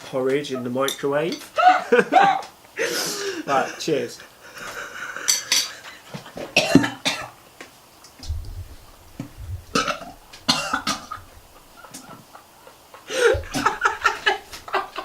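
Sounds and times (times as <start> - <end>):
dull low rumble: 8.2 - 10.3
man making burp-like throat noises: 9.6 - 11.3.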